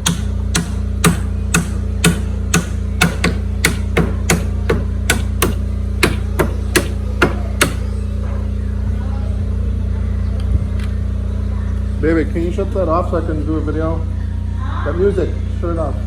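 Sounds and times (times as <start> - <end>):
hammer blows: 0.0 - 7.9
steady low hum: 0.0 - 16.0.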